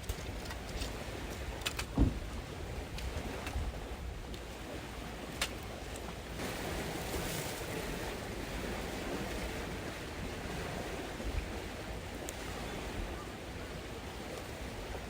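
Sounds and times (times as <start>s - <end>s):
wind buffeting microphone: 0.0s - 5.3s
water rushing: 1.0s - 15.0s.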